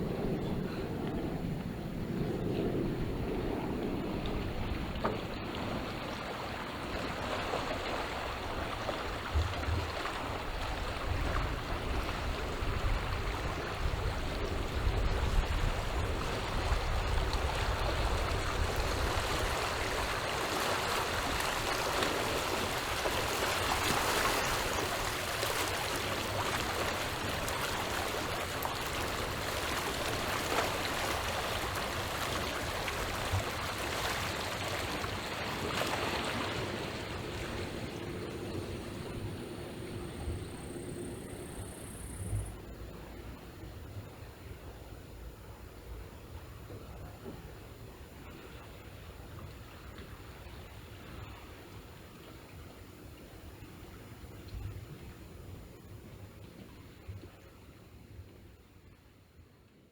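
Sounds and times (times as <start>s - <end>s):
wind buffeting microphone: 0.0s - 7.2s, 8.1s - 50.2s
waves lapping on shore: 3.0s - 58.1s.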